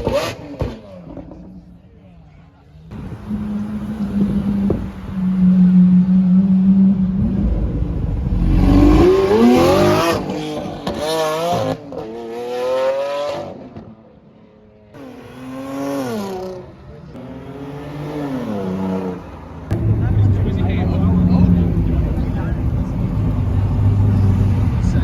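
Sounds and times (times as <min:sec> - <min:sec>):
car accelerating hard: 0:02.9 - 0:13.9, 0:15.0 - 0:25.0
engine revving: 0:03.0 - 0:13.6.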